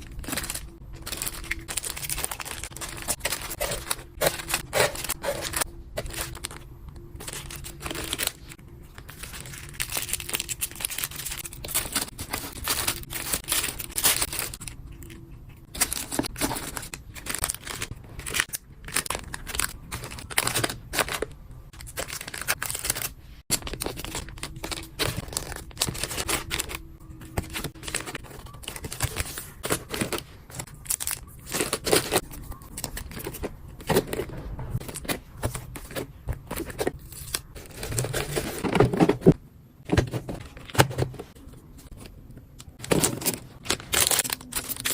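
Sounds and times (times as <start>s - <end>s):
plastic packaging crinkling: 0.0s - 39.4s, 40.2s - 44.9s
packaging tearing: 42.8s - 44.9s.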